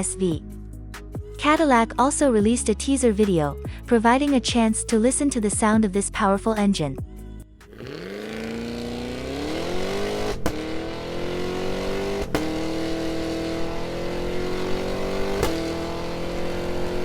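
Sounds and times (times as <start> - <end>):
car engine revving: 7.7 - 17.0
sharp cracks: 10.3 - 10.7, 15.3 - 15.8.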